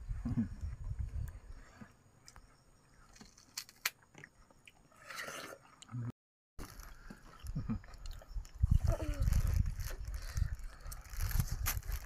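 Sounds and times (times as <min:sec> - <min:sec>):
child chewing watermelon: 0:03.9 - 0:12.0.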